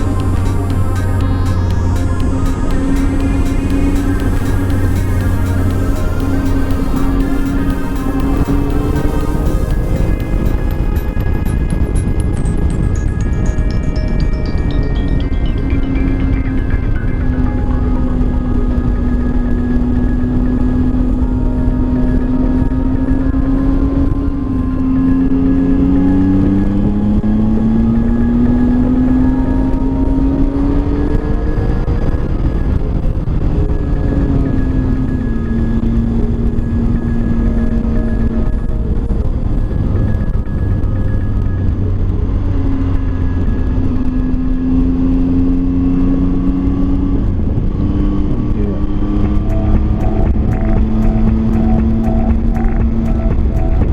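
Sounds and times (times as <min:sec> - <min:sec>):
wind and road noise: 0:15.7 - 0:53.9
motorcycle engine running: 0:49.2 - 0:53.9.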